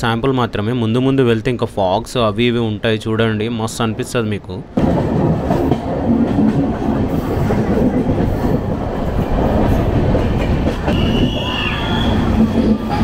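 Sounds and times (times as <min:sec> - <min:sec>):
train wheels rattling on rails: 0:03.9 - 0:13.0
high wheel squeal: 0:10.9 - 0:13.0.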